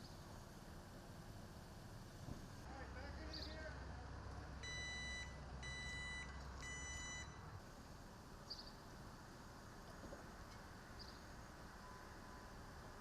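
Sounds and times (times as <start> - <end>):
back-up alarm beeping: 4.6 - 7.4.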